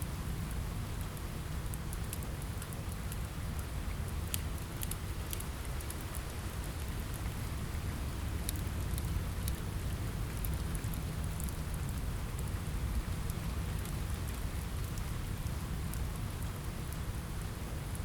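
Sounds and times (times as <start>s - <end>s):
rain on a window: 0.0s - 18.0s
wood fire crackling: 0.2s - 18.0s.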